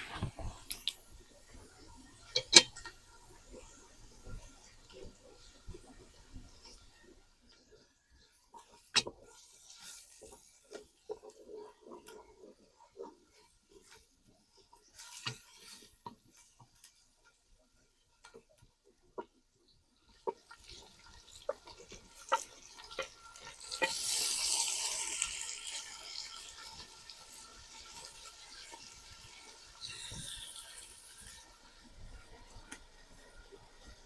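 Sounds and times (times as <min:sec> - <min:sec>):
sudden hiss: 0:29.8 - 0:31.4.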